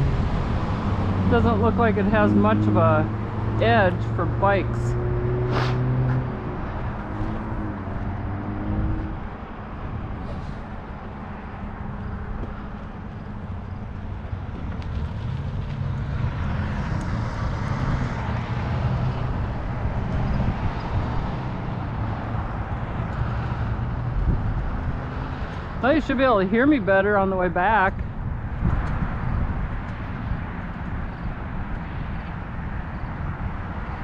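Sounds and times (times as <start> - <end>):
vehicle passing by: 0.0 - 27.0
road traffic: 0.0 - 34.0
wind buffeting microphone: 0.0 - 34.0.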